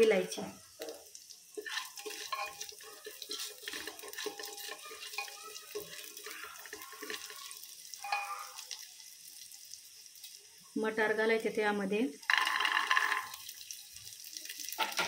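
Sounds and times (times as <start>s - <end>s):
spices sizzling in hot oil: 0.0s - 15.0s
spatula scraping and tapping pot: 0.8s - 8.5s.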